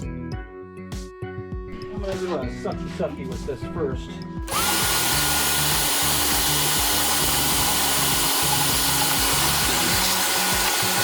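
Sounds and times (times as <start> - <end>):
blower vacuum rushing with motor whine: 4.5 - 11.0.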